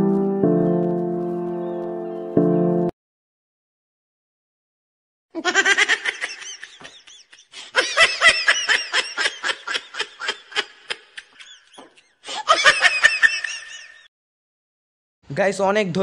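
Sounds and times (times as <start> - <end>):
person laughing: 5.4 - 14.1.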